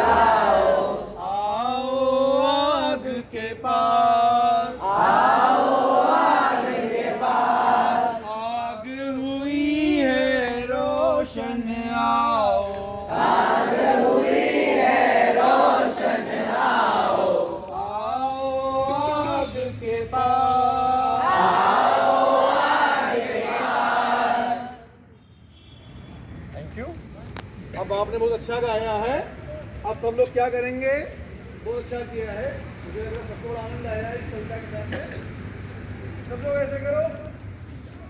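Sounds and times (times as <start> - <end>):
group singing together: 0.0 - 8.7, 9.5 - 25.0.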